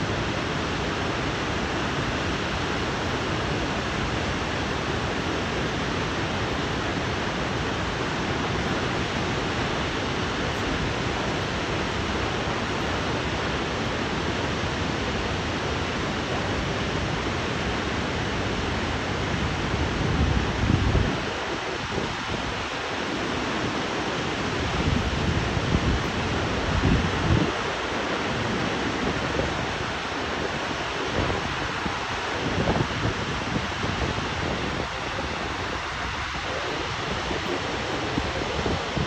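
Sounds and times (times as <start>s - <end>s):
waterfall rushing: 0.0s - 39.0s
wind buffeting microphone: 17.9s - 39.0s.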